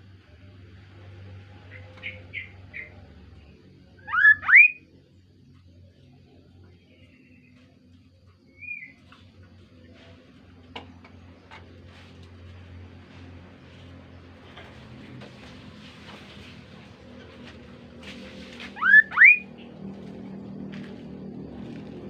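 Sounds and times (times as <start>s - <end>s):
steady low hum: 0.0s - 22.0s
short whistled bird call: 18.7s - 19.5s.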